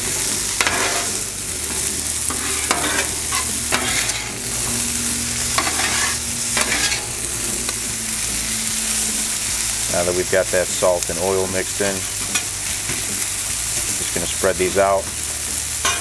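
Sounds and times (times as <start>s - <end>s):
metal spatula scraping griddle: 0.0s - 9.8s, 15.8s - 16.0s
potatoes sizzling in oil: 0.0s - 16.0s.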